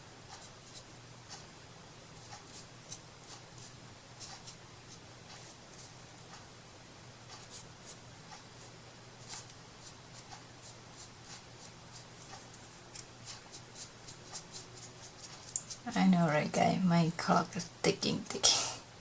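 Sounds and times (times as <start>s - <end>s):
light scratching strokes: 7.4s - 16.0s.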